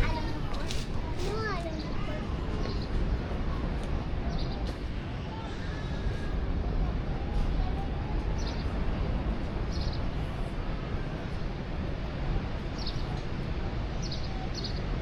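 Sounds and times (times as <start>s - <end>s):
low outdoor rumble: 0.0s - 15.0s
small birds chirping: 12.8s - 13.1s.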